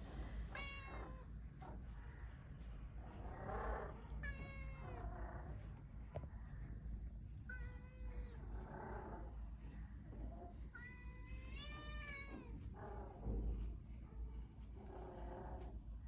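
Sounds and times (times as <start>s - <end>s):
low steady hum: 0.0s - 16.0s
cat meowing: 0.5s - 1.3s, 4.1s - 5.1s, 10.8s - 12.6s.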